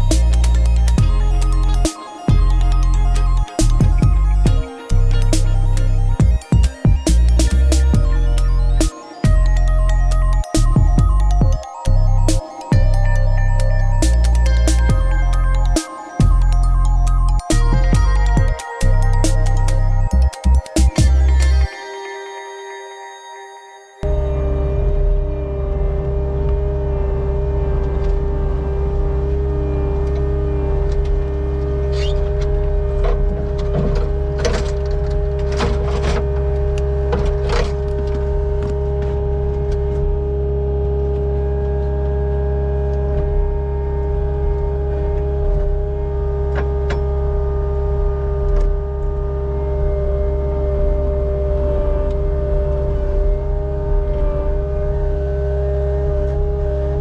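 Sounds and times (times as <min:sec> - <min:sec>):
skid steer engine whining: 0:00.0 - 0:21.7.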